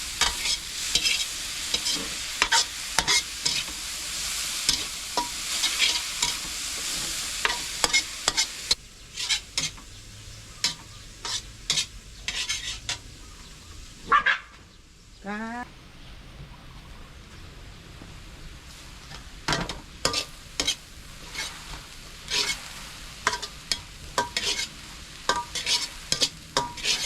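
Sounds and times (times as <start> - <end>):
spatula scraping a pan: 0.0 - 9.8, 10.6 - 13.2, 19.5 - 27.0
food sizzling in a pan: 0.0 - 14.1, 18.2 - 27.0.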